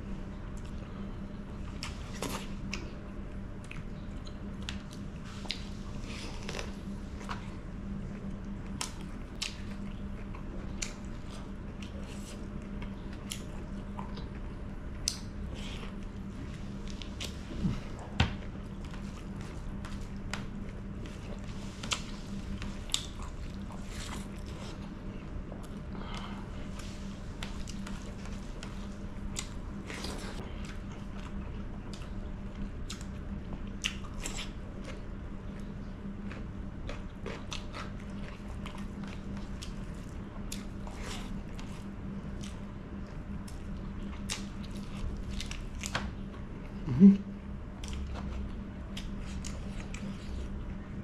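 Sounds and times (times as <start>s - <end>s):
steady low hum: 0.0s - 51.0s
wet chewing: 27.0s - 46.8s
throat sound: 46.8s - 47.4s.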